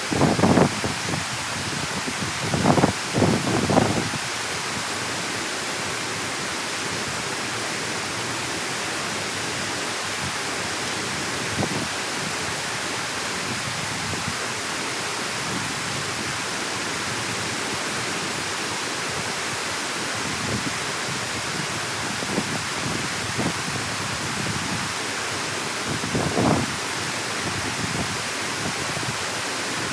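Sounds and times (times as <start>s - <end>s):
water pouring through a dam: 0.0s - 29.9s.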